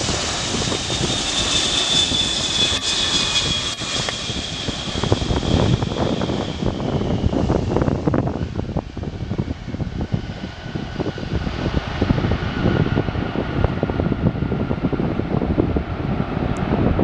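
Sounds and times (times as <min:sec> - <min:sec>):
faint whine dropping in pitch: 0:00.0 - 0:09.6
jet engines rumbling roar: 0:00.0 - 0:17.0.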